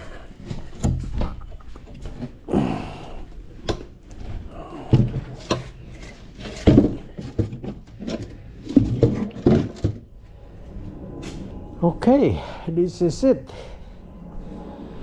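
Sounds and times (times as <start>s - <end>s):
hard objects knocking and clunking: 4.8s - 10.1s.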